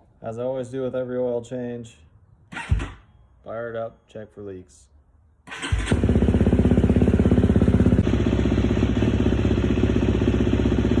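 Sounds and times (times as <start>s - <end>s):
dirt bike engine idling: 5.6s - 11.0s.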